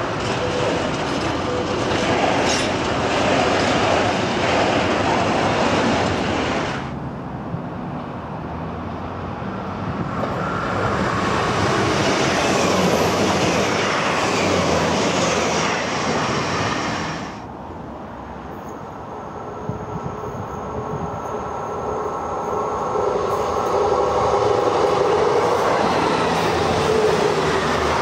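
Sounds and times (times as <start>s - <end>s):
freight wagons rolling on rails: 0.0s - 6.8s
diesel train passing: 0.0s - 28.0s
distant train: 0.0s - 28.0s.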